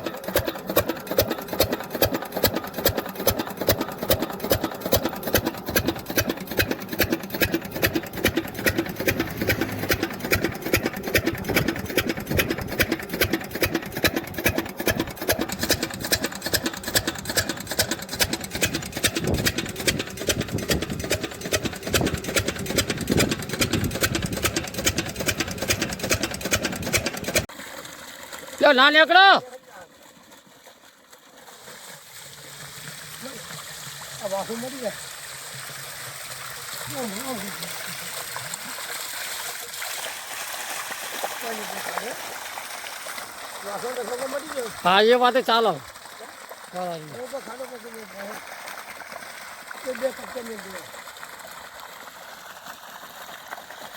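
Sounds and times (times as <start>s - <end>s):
diesel engine chugging: 0.0s - 27.5s.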